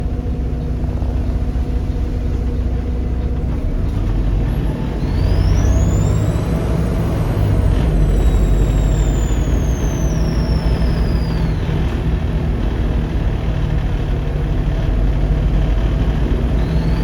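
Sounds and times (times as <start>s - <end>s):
diesel bus engine rumble: 0.0s - 17.0s
high turbo whistle: 4.6s - 12.4s, 16.2s - 17.0s.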